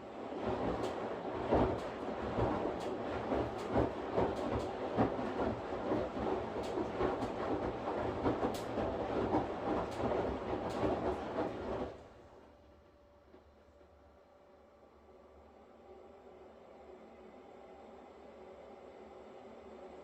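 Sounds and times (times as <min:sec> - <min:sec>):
washing machine running: 0:00.0 - 0:13.0.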